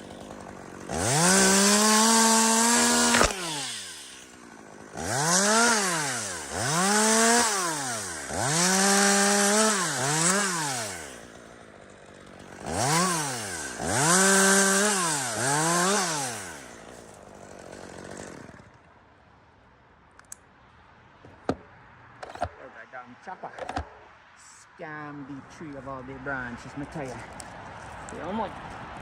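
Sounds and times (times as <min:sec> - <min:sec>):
chainsaw revving and cutting: 0:00.0 - 0:18.8.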